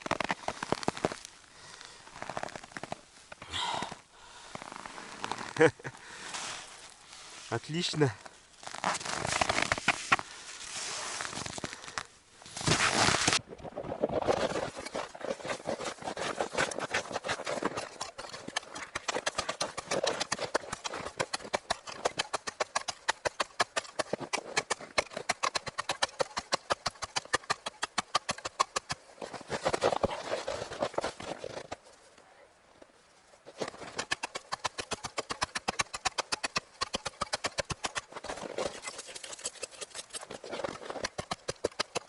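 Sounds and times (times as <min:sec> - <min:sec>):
rustling: 0:00.0 - 0:42.0
rapid sharp clicks: 0:34.0 - 0:38.1.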